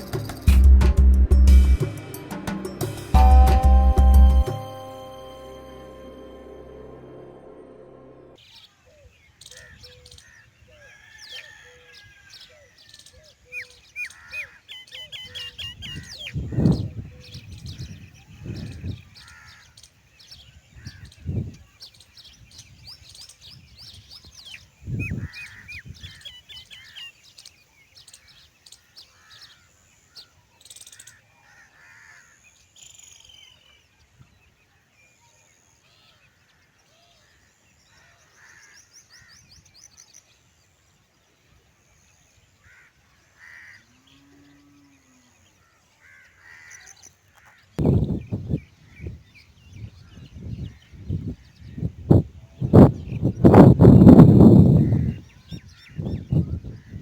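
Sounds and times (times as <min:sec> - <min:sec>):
small birds chirping and trilling: 0:08.4 - 0:57.0
crows cawing: 0:31.0 - 0:32.4, 0:42.6 - 0:43.8.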